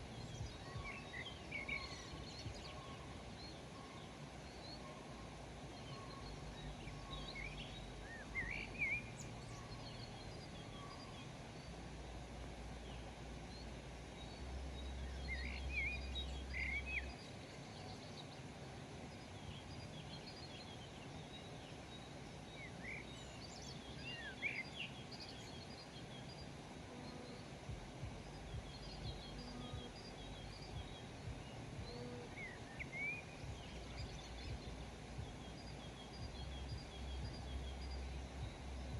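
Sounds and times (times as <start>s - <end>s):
low outdoor rumble: 0.0s - 38.9s
small birds chirping: 0.0s - 38.9s.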